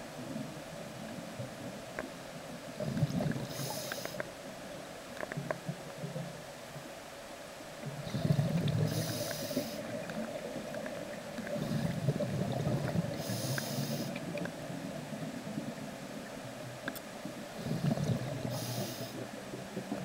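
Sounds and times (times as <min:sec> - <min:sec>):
diver breathing bubbling rumble: 0:02.8 - 0:04.2, 0:07.9 - 0:14.7, 0:17.4 - 0:20.0
regulator hiss: 0:03.4 - 0:04.3, 0:08.8 - 0:10.0, 0:13.1 - 0:14.2, 0:18.4 - 0:19.3.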